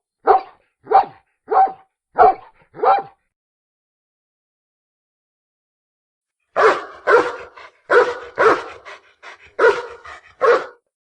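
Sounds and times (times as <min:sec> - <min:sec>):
dog barking: 0:00.2 - 0:03.2, 0:06.6 - 0:10.9.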